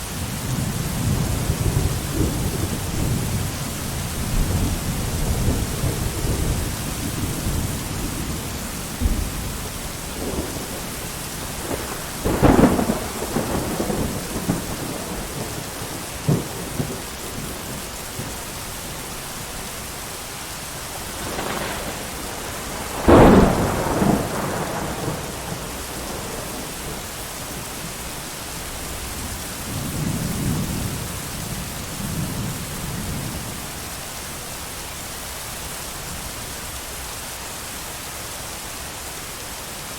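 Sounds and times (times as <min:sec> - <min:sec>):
heavy rain: 0:00.0 - 0:39.9
rolling thunder: 0:00.2 - 0:19.0, 0:20.9 - 0:28.0, 0:29.1 - 0:33.6
sharp thunder cracks: 0:09.0 - 0:18.3, 0:21.1 - 0:27.1.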